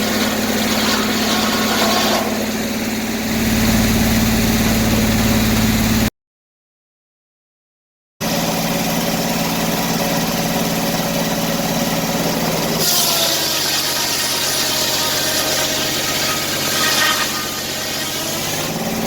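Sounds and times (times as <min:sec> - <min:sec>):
saw blade cutting log: 0:00.0 - 0:04.8, 0:10.9 - 0:19.0
circular sawmill running: 0:00.0 - 0:06.1, 0:08.2 - 0:19.0.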